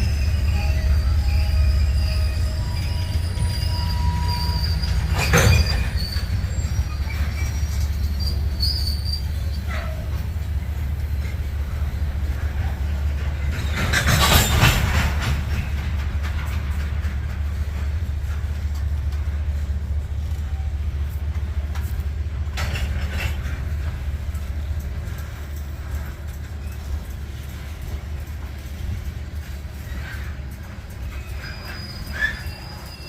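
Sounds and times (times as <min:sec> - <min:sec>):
high-pitched squealing: 0:00.0 - 0:09.4
freight train rumbling: 0:00.0 - 0:33.0.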